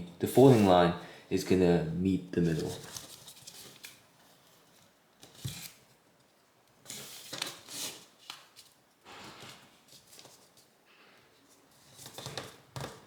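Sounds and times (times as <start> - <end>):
paper rustling: 2.5 - 5.8, 6.8 - 10.8.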